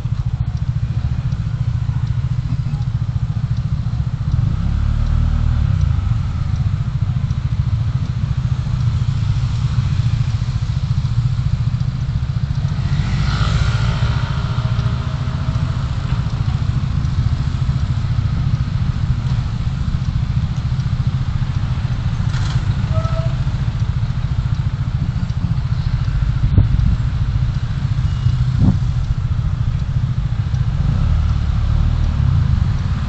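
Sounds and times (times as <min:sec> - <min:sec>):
vehicle engine and road rumble: 0:00.0 - 0:33.0
vehicle passing by: 0:12.6 - 0:17.1, 0:28.0 - 0:33.0.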